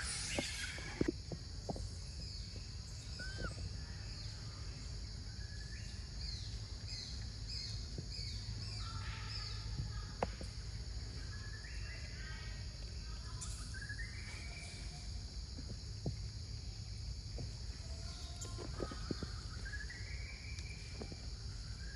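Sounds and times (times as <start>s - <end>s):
birds chirping: 0.0s - 10.5s.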